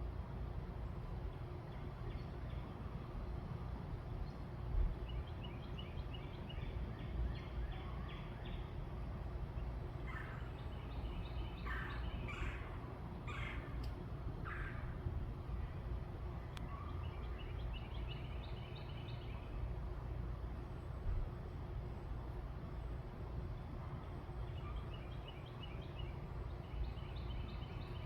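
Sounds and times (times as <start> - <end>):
birds calling: 9.5 - 15.8.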